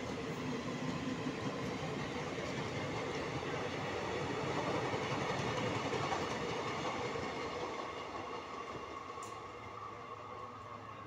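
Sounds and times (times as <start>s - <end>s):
train wheels rolling over rails: 0.1s - 9.8s.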